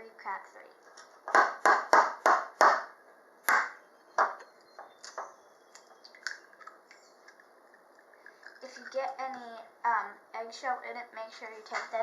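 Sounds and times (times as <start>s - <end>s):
eggshell crackles and clicks: 4.4s - 9.6s
egg cracking on bowl rim: 5.0s - 9.2s.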